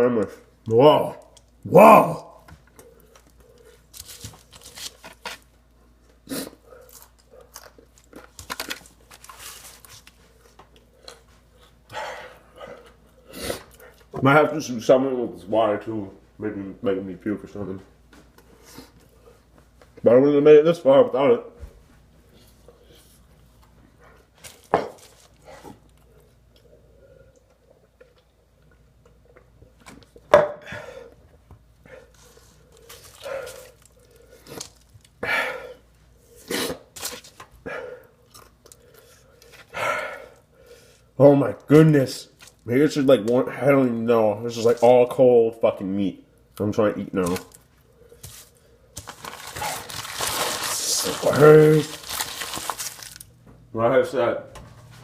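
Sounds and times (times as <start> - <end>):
man chewing a burger: 5.9 - 14.1, 31.6 - 41.1.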